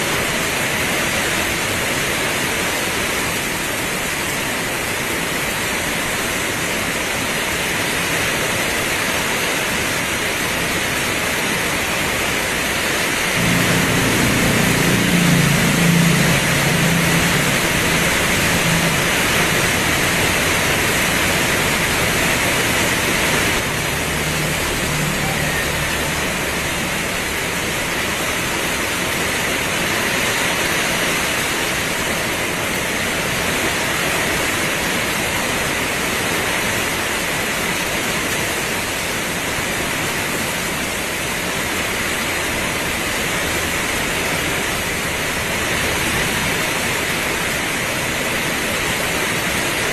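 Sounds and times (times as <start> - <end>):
heavy rain pouring: 0.0 - 49.9
low hum: 13.4 - 28.8.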